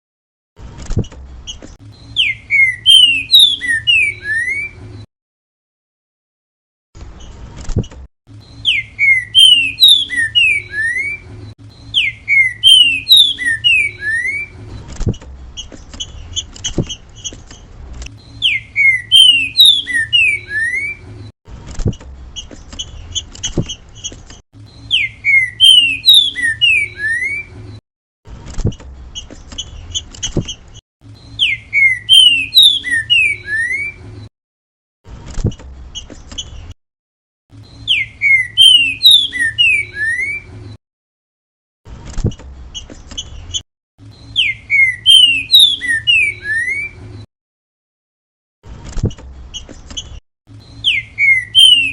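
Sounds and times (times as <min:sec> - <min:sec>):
bird whistling song: 0:01.5 - 0:04.9, 0:08.4 - 0:14.7, 0:18.2 - 0:21.1, 0:22.4 - 0:27.7, 0:31.2 - 0:34.1, 0:37.6 - 0:40.6, 0:42.8 - 0:47.3, 0:49.5 - 0:51.9.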